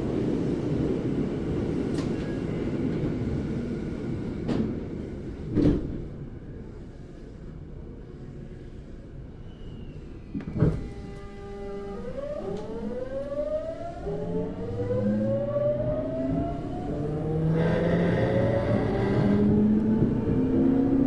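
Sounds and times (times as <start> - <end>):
train running noise: 0.0 - 9.4.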